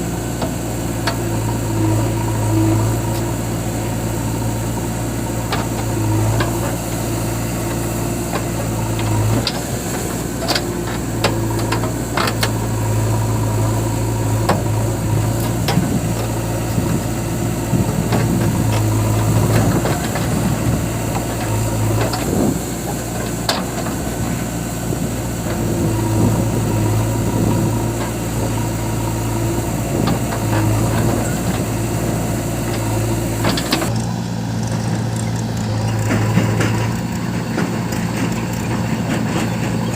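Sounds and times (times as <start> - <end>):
diesel backhoe engine running: 0.0 - 39.9.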